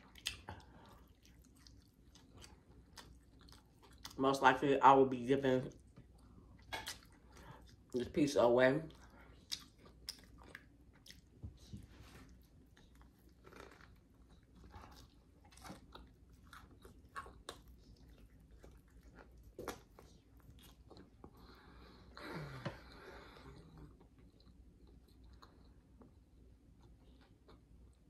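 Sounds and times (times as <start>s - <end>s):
chewing and biting pizza: 0.0s - 4.2s, 8.9s - 21.9s.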